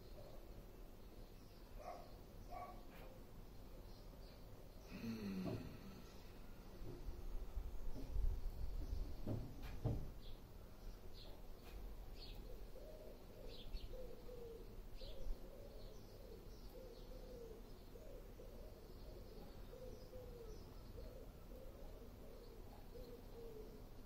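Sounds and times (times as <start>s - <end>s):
birds chirping: 0.0s - 24.0s
bird cooing: 12.2s - 24.0s.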